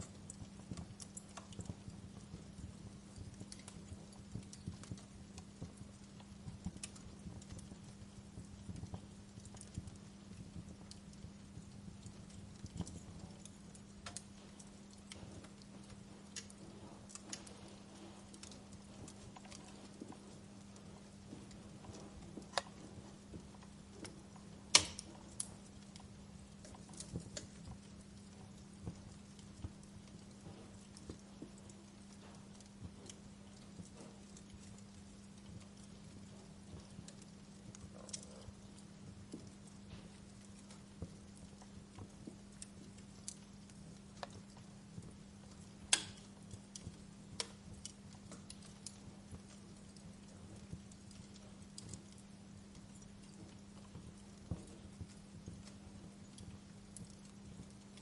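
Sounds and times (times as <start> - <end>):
faint low hum: 0.0 - 58.0
fire crackling and popping: 0.0 - 58.0
low steady hiss: 0.0 - 58.0.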